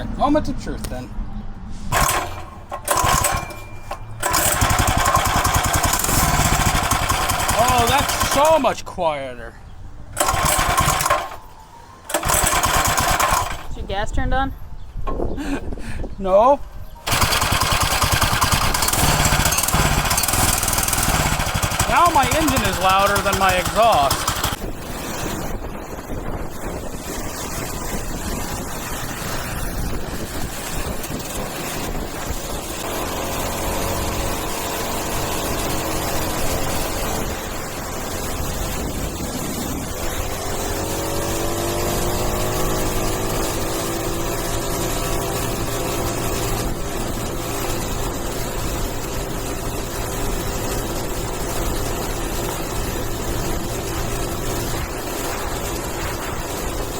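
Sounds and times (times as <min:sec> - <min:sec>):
small engine running: 0:01.9 - 0:08.6, 0:10.2 - 0:13.8, 0:17.0 - 0:25.1, 0:26.6 - 0:56.9
engine rising whine: 0:16.9 - 0:56.9.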